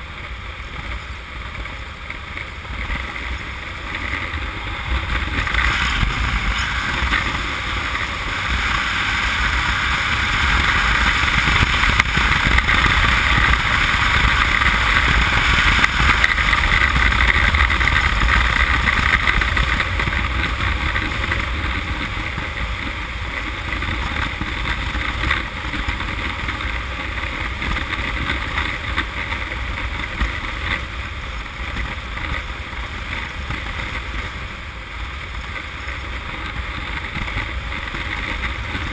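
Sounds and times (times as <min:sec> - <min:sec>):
motorcycle engine running: 0:00.0 - 0:38.9
wind rushing over microphone: 0:00.0 - 0:38.9.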